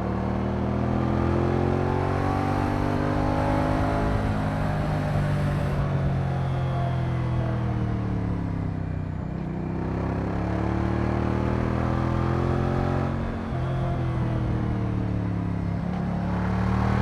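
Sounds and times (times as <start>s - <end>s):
motorcycle engine revving: 0.8s - 6.2s, 9.4s - 17.0s.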